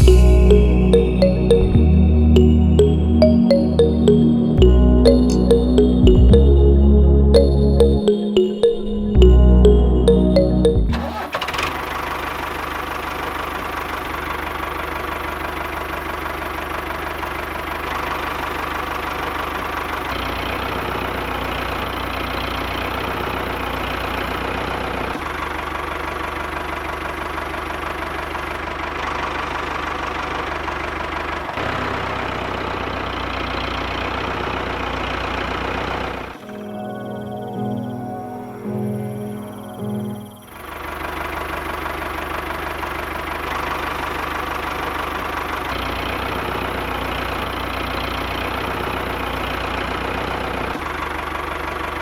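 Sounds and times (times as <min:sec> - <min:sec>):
music: 0:00.0 - 0:11.2, 0:36.4 - 0:40.6.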